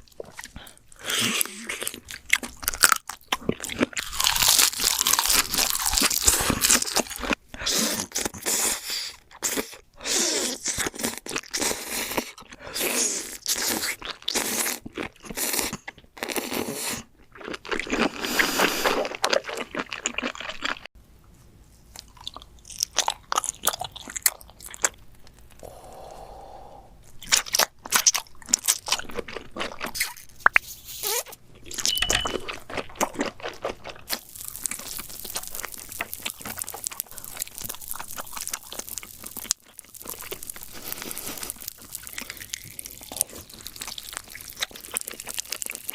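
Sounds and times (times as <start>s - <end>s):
crunching bites of food: 0.1s - 9.8s, 27.1s - 45.9s.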